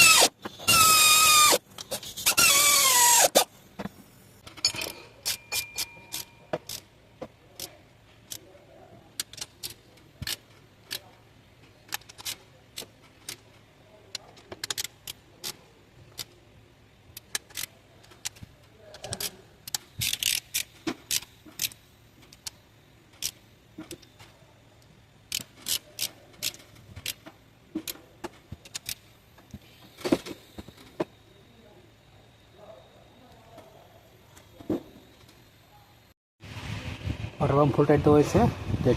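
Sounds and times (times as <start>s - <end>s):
hand tools clinking on metal bolts: 4.5s - 6.9s.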